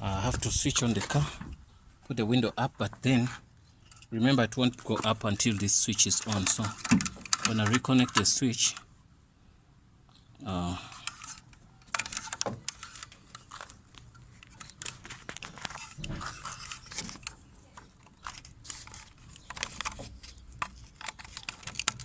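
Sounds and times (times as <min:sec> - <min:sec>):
plastic crinkling: 0:11.1 - 0:22.0.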